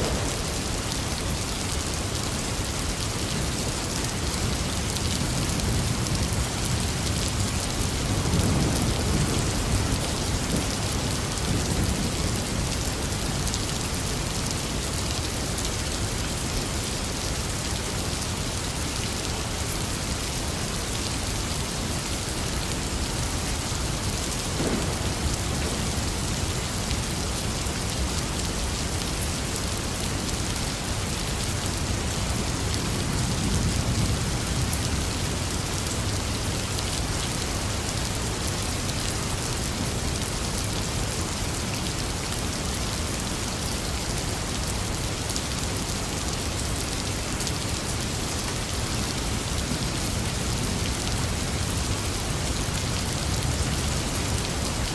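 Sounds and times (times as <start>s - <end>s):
thunder rumbling: 0.0s - 2.0s, 24.4s - 26.8s
heavy rain pouring: 0.0s - 54.9s.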